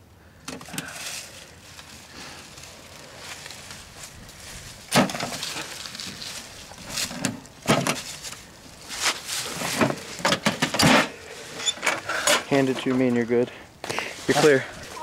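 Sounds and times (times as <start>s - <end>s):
crate knocks and rattles: 4.9s - 5.6s.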